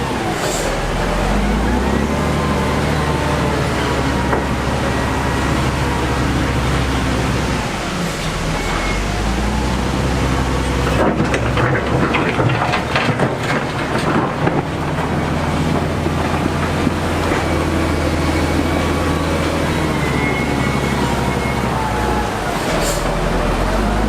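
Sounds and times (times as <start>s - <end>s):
diesel machinery running: 0.0s - 24.0s
loud clattering and knocking: 10.8s - 19.6s.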